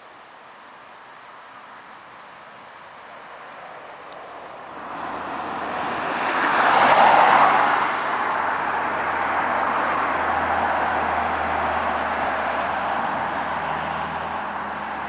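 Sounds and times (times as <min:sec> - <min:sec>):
traffic noise: 0:00.0 - 0:15.0
vehicle passing by: 0:04.7 - 0:15.0.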